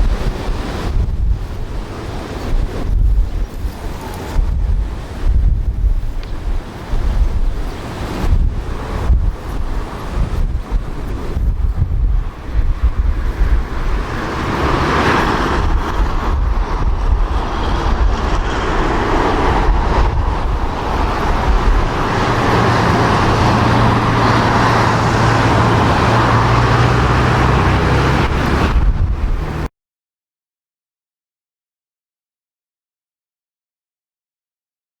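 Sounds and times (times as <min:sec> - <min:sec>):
jet engines: 0:00.0 - 0:29.7
wind buffeting microphone: 0:00.0 - 0:29.7
low engine tone: 0:08.2 - 0:29.7.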